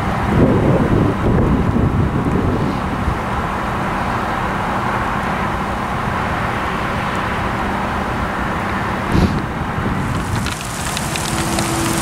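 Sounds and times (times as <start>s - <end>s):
train rumbling past: 9.8s - 12.0s.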